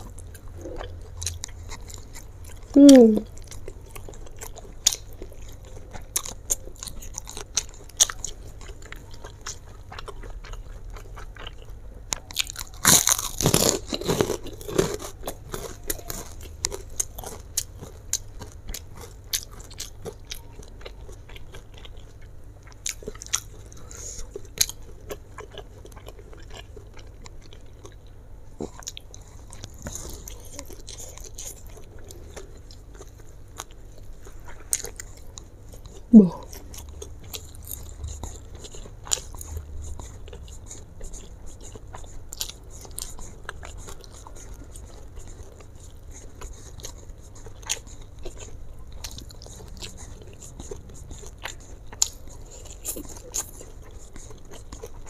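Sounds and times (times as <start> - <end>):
person chewing noodles: 0.0 - 55.0.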